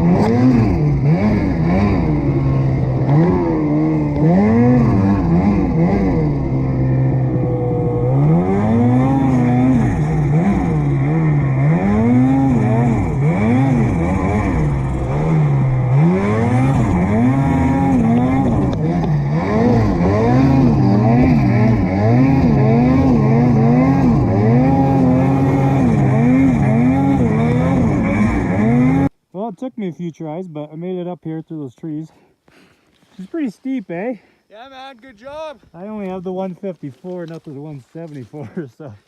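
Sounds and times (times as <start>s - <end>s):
snowmobile engine revving: 0.0s - 29.2s.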